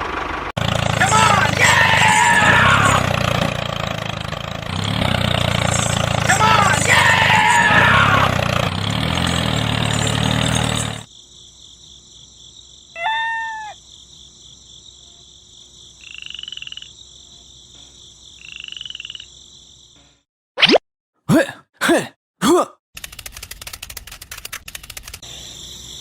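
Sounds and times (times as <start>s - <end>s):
frogs croaking: 15.8s - 19.9s.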